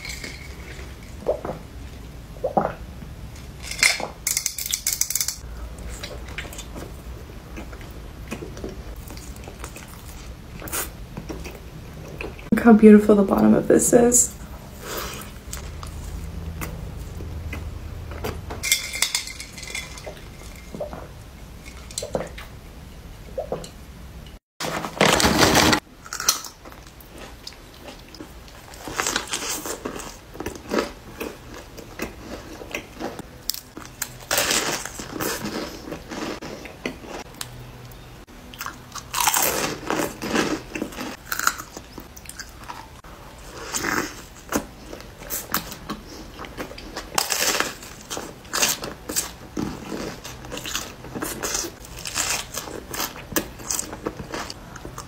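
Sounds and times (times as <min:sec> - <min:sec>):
crunchy chewing: 0:26.0 - 0:55.0.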